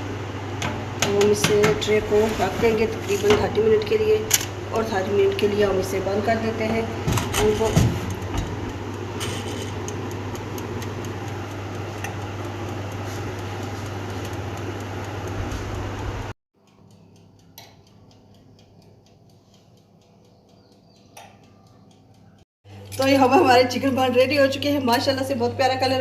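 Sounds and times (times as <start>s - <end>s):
oven humming: 0.0s - 26.0s
faint ticking: 8.1s - 9.2s, 9.8s - 22.4s.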